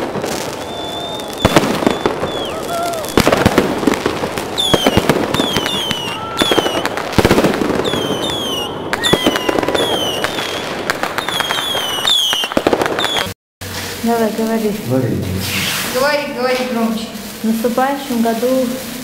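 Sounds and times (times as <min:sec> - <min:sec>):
falling firework whistles: 0:00.0 - 0:13.8, 0:15.4 - 0:16.3
fireworks bangs and crackles: 0:00.0 - 0:19.0.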